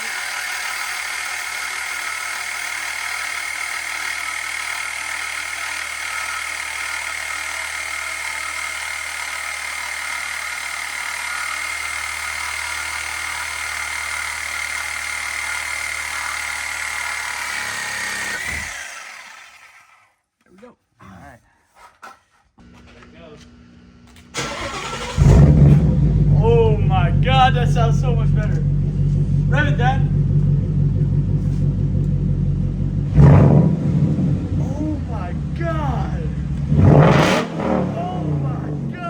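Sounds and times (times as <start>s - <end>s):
power tool high whine: 0.0s - 20.2s.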